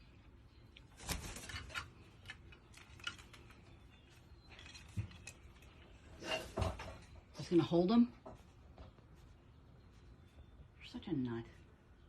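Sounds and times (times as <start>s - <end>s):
crow beak clicks and rustles: 0.2s - 7.2s.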